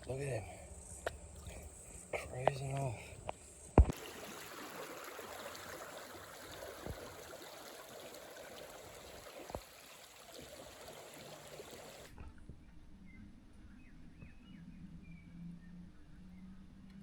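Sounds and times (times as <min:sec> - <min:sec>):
creek water flowing: 0:03.8 - 0:12.1.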